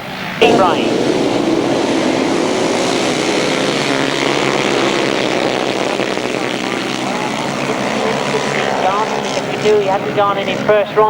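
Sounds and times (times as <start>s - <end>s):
motorcycles racing: 0.0s - 11.0s.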